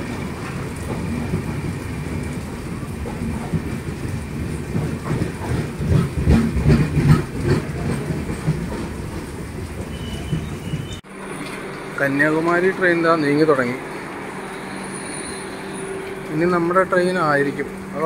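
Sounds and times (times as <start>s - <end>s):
train rumbling: 0.0s - 18.0s
train wheels clattering: 3.0s - 11.0s.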